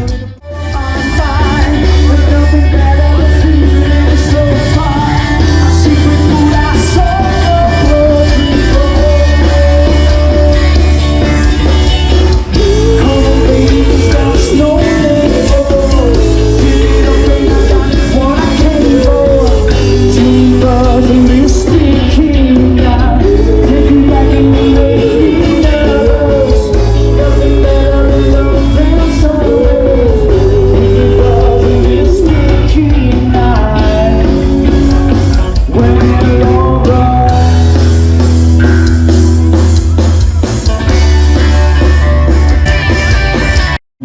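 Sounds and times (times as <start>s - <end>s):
person singing: 0.0s - 42.2s
live rock band: 0.0s - 43.8s
loud bass: 0.0s - 43.8s.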